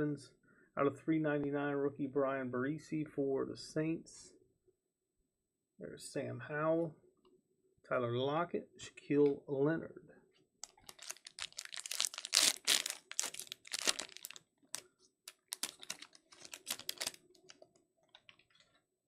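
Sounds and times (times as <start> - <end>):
trading cards flipped by hand: 10.6 - 17.6.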